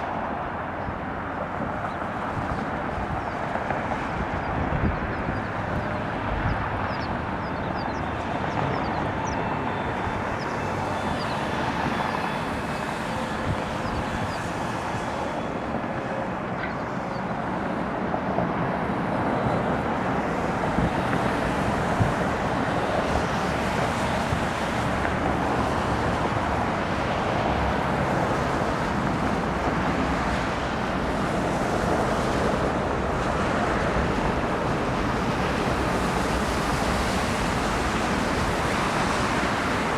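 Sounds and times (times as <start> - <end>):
wind on microphone: 0.0 - 16.4, 18.4 - 39.9
jet aircraft noise: 0.0 - 39.9.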